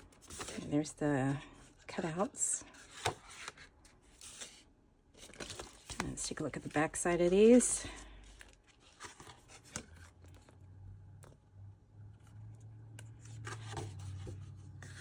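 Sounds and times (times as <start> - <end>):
paper rustling: 5.2 - 10.5, 13.2 - 15.0.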